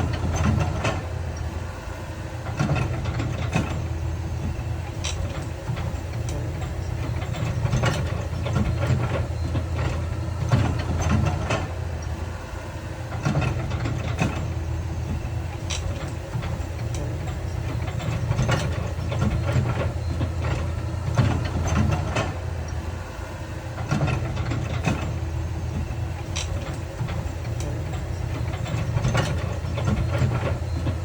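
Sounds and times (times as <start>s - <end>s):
diesel earthmoving machinery running: 0.0s - 31.0s.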